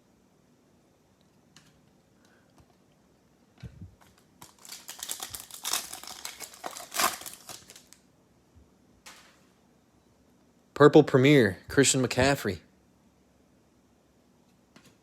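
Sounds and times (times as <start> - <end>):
foil wrapper crinkling and tearing: 4.0 - 8.0.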